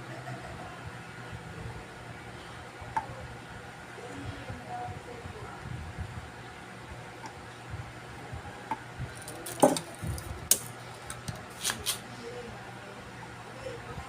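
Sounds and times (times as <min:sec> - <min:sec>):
steady low hum: 0:00.0 - 0:14.0
small tools clicking and knocking: 0:09.2 - 0:12.0.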